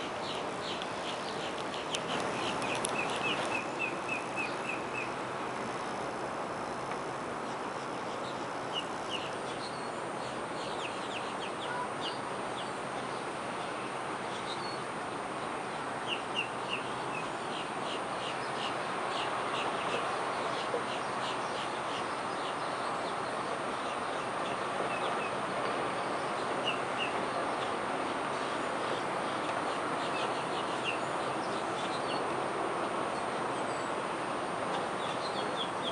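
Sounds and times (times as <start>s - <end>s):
birds chirping: 0.0s - 5.2s
steady outdoor hiss: 0.0s - 35.9s.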